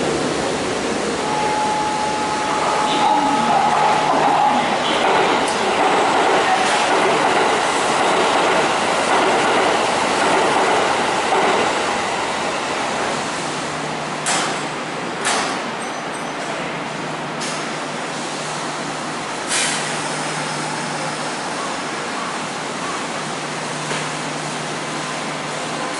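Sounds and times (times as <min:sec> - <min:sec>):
electric train rolling noise: 0:00.0 - 0:15.2.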